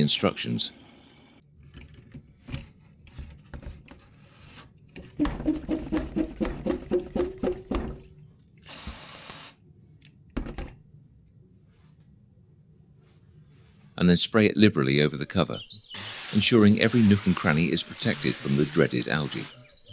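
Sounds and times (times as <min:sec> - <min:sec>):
knocks: 0:05.2 - 0:08.1.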